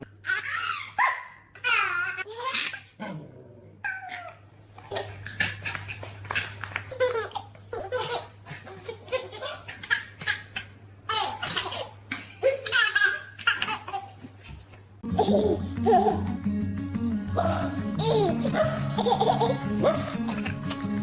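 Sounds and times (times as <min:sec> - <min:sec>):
baby laughing: 0:00.0 - 0:03.0, 0:03.9 - 0:16.4, 0:17.4 - 0:21.0
music: 0:15.0 - 0:21.0.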